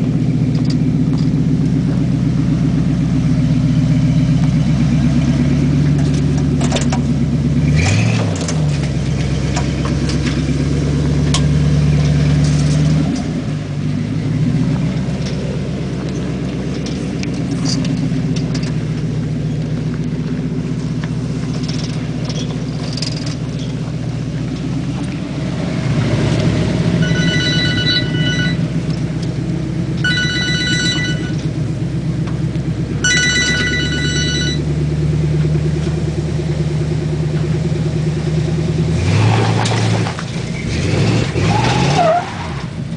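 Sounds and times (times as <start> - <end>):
car engine running: 0.0 - 42.9
high electronic ringing tone: 27.0 - 28.7, 30.0 - 31.4, 33.0 - 34.7.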